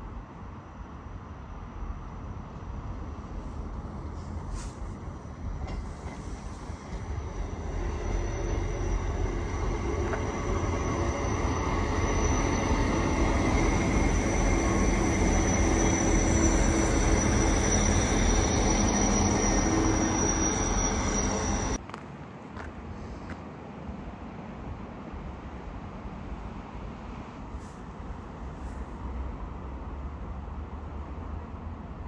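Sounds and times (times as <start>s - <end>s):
train wheels rumbling on rail: 2.0s - 23.5s
high-pitched whine: 6.7s - 21.8s.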